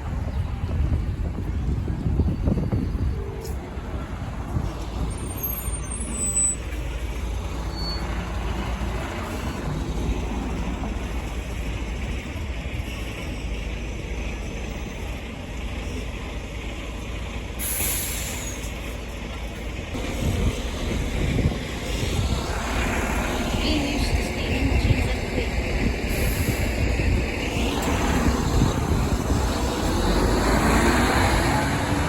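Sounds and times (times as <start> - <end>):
diesel bus engine rumbling: 0.0 - 32.0
air brakes hissing: 17.6 - 19.0, 26.1 - 28.7.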